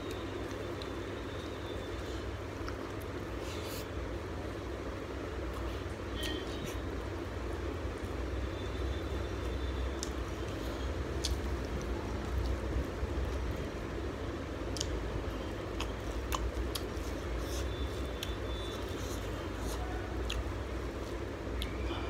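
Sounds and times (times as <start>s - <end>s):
person chewing food: 0.0s - 4.0s, 9.9s - 13.8s, 14.6s - 22.0s
wet mouth clicks: 14.7s - 15.0s, 15.7s - 19.3s.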